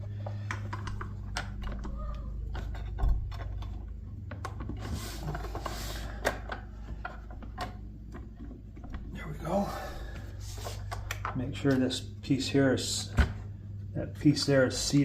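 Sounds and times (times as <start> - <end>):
plastic parts clicking and tapping: 0.0 - 9.1
steady low hum: 0.0 - 15.0
rubber hose rubbing: 4.7 - 6.2.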